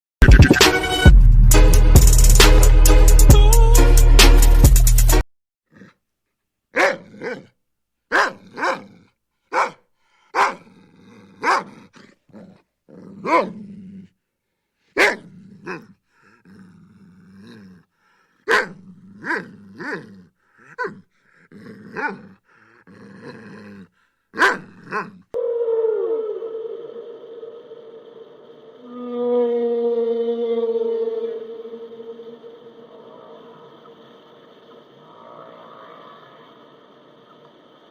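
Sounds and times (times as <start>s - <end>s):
dog growling low: 5.7s - 6.0s, 8.4s - 9.2s, 10.2s - 14.2s, 15.1s - 34.4s
dog barking: 6.7s - 10.7s, 11.4s - 12.6s, 13.2s - 13.6s, 15.0s - 15.9s, 18.4s - 20.1s, 20.7s - 21.1s, 21.9s - 22.4s, 24.4s - 25.2s.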